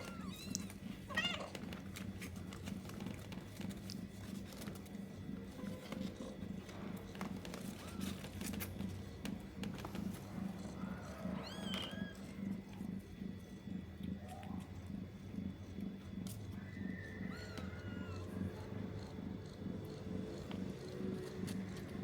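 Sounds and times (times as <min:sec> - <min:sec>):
kittens squeaking: 0:00.0 - 0:01.7, 0:10.6 - 0:12.4, 0:16.7 - 0:19.2
cat purring: 0:00.0 - 0:22.0.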